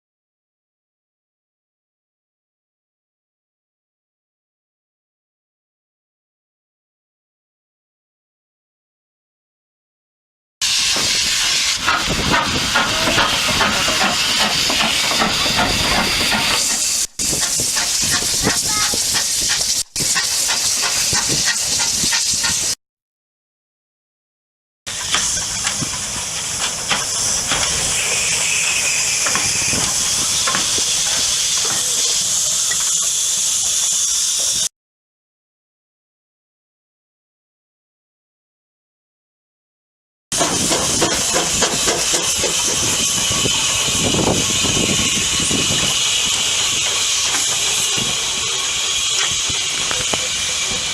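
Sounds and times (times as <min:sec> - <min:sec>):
steam locomotive hissing: 0:10.6 - 0:22.8, 0:24.9 - 0:34.7, 0:40.3 - 0:50.9.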